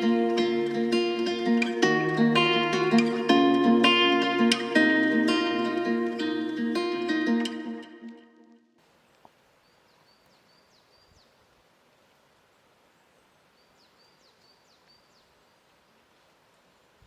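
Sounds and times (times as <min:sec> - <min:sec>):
guitar music: 0:00.0 - 0:08.8.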